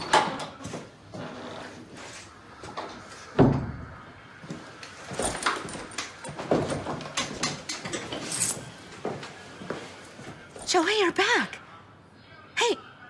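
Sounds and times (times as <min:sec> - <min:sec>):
door shutting with a thud: 0:03.4 - 0:03.9
footsteps: 0:04.0 - 0:10.9
small knocks and rustles: 0:04.4 - 0:10.4.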